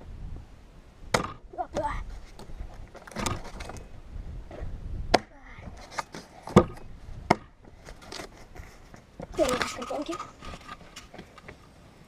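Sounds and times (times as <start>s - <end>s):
axe chopping wood: 1.1s - 1.9s, 5.1s - 5.4s, 6.5s - 7.6s.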